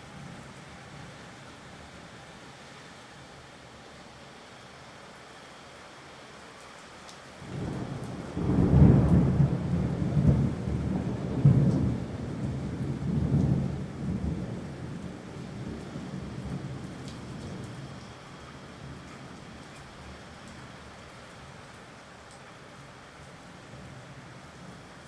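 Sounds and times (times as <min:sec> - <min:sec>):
rain hissing: 0:00.0 - 0:25.0
rolling thunder: 0:07.5 - 0:17.7.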